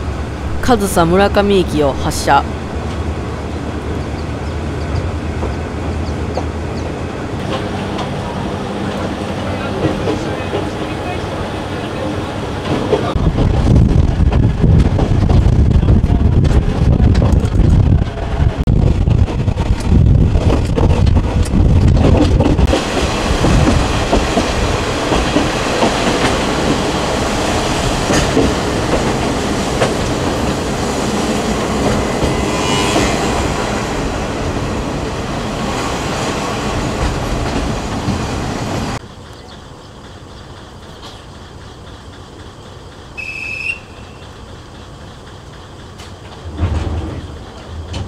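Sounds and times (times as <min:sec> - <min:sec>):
diesel railcar running: 0:00.0 - 0:48.0
rails clattering: 0:44.2 - 0:48.0.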